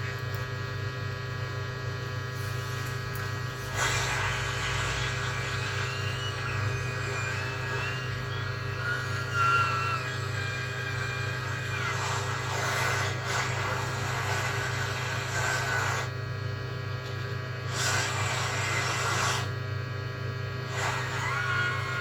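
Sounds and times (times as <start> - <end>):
hot air station hissing: 2.3 - 16.2, 17.7 - 19.6, 20.6 - 22.0.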